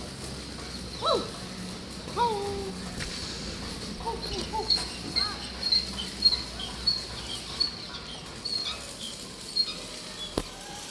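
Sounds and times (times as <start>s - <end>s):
birds chirping: 2.9s - 10.4s.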